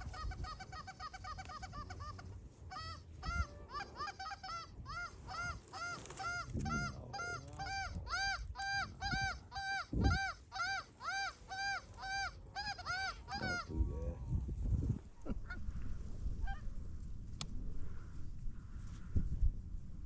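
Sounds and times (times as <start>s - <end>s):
goose honking: 0.0s - 13.8s.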